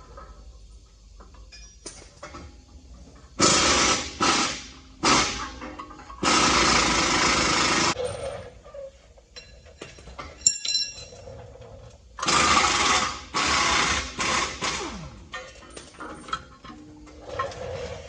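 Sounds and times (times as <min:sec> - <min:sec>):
air impact wrench: 0:03.4 - 0:08.0, 0:12.2 - 0:16.0
ringing metallic clink: 0:10.4 - 0:11.2.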